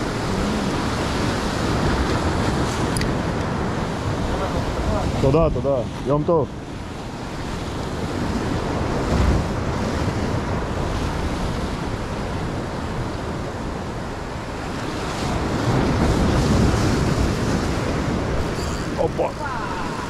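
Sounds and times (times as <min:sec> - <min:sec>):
surf washing against rocky shore: 0:00.0 - 0:20.0
wind buffeting microphone: 0:00.0 - 0:20.0.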